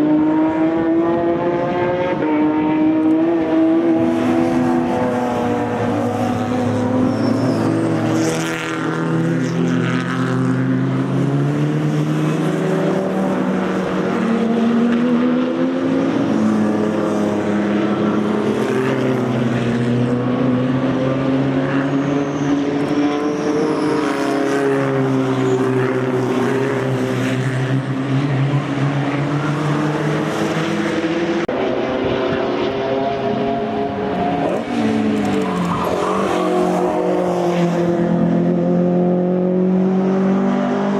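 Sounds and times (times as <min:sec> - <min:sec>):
racing car engines at full throttle: 0:00.0 - 0:40.9.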